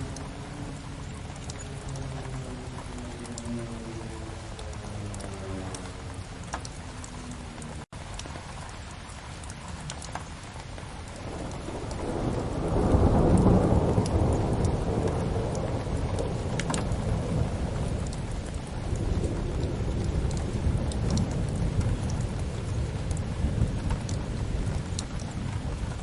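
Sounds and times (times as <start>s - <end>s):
faint fire crackles: 0.0s - 26.0s
steady rain: 0.0s - 26.0s
thunder rolling: 11.2s - 26.0s.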